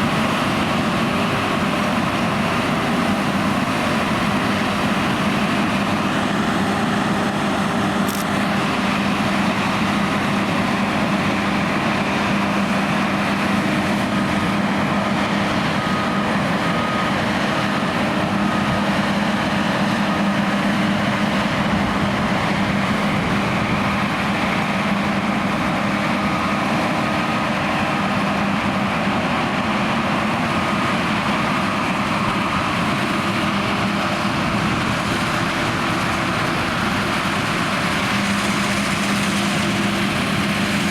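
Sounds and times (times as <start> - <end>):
combine harvester engine hum: 0.0 - 40.9
machinery rushing noise: 0.0 - 40.9.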